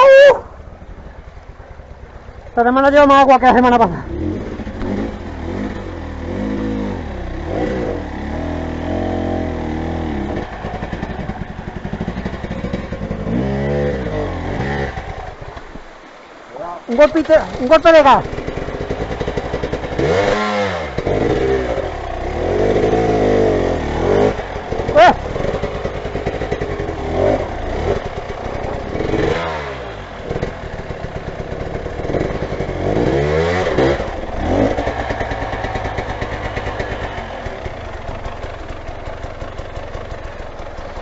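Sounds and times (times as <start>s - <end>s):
motorcycle engines revving: 0.0s - 41.0s.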